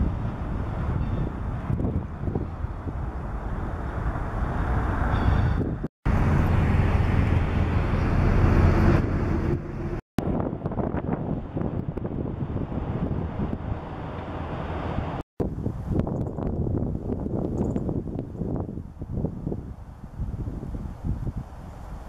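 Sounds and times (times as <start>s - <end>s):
freight train rumbling by: 0.0s - 15.2s
passenger trains crossing overpasses: 0.0s - 15.2s
wind on microphone: 0.0s - 22.0s.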